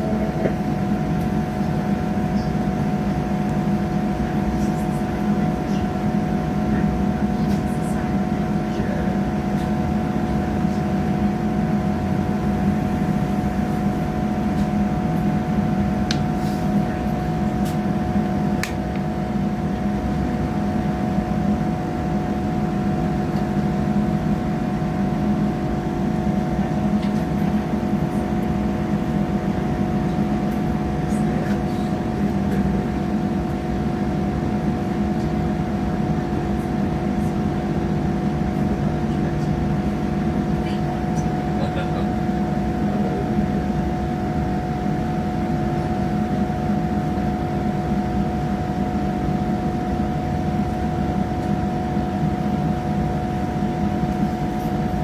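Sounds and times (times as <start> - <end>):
train engine hum: 0.0 - 55.0.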